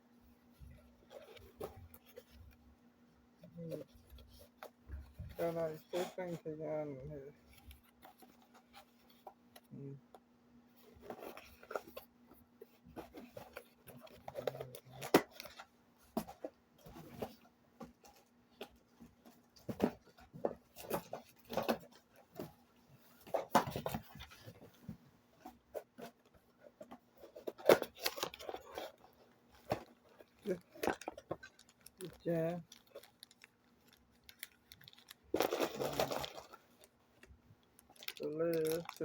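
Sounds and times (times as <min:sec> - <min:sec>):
packaging rustling: 0:25.4 - 0:39.0.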